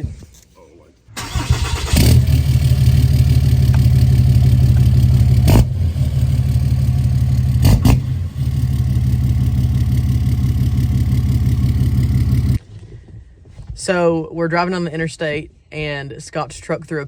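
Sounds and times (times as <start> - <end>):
pickup truck engine rumbling: 1.2 - 12.6.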